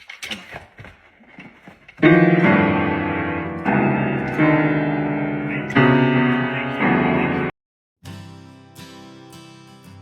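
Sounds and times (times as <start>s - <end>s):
piano music with sustained chords: 2.0s - 7.5s.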